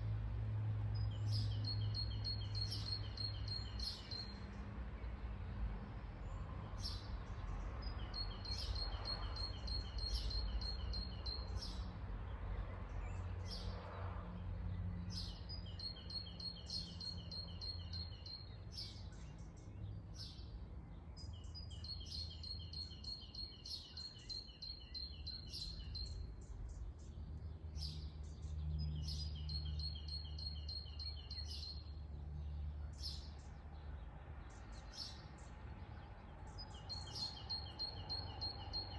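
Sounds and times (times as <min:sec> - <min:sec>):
birds chirping: 0:21.2 - 0:38.9.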